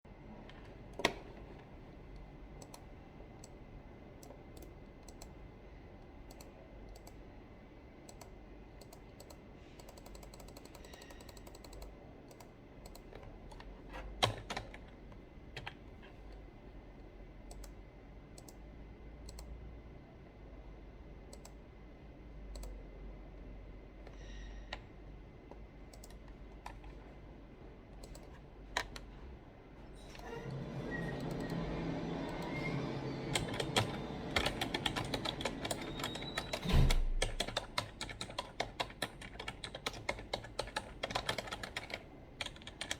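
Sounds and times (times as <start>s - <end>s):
keyboard keys tapping and clicking: 8.1s - 15.8s, 25.9s - 27.1s, 32.3s - 42.9s.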